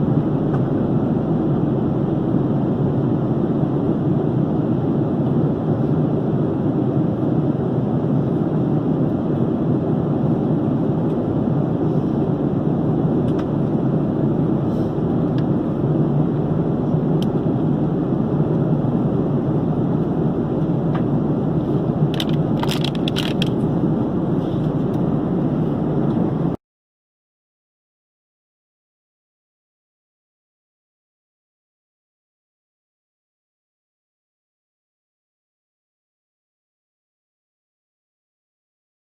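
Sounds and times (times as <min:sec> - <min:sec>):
jet cabin engine drone: 0:00.0 - 0:26.6.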